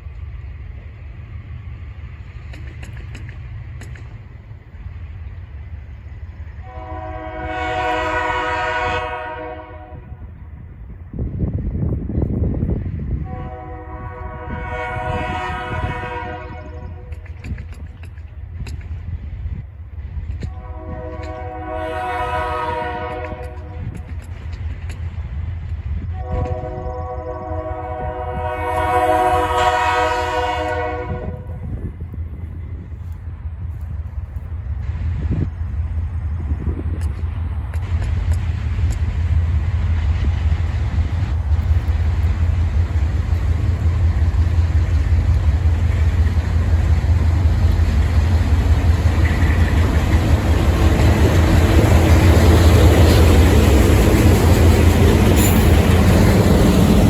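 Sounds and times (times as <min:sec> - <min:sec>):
low rumble of passing train: 0:00.0 - 0:57.0
locomotive horn blast: 0:06.6 - 0:10.2, 0:13.2 - 0:17.1, 0:20.5 - 0:24.0, 0:26.1 - 0:31.8.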